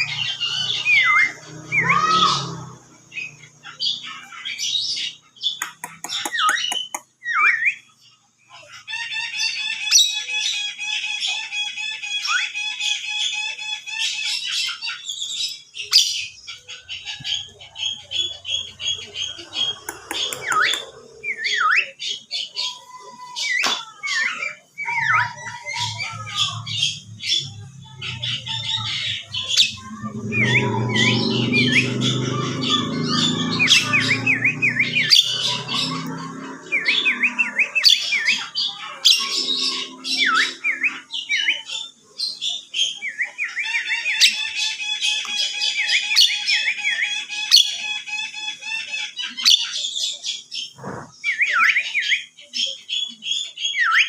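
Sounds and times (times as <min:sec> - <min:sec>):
bird whistling: 0:28.2 - 0:41.7.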